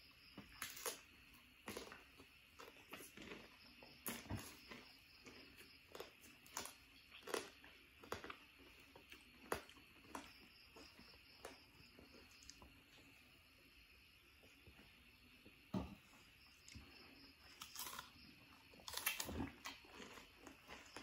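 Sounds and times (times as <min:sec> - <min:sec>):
person chewing: 0:01.6 - 0:13.1, 0:16.6 - 0:21.0.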